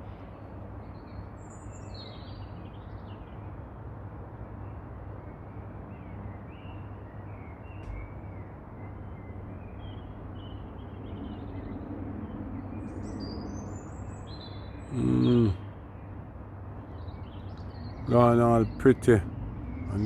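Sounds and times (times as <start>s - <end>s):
birds chirping and calling: 14.4s - 15.6s, 17.2s - 20.0s.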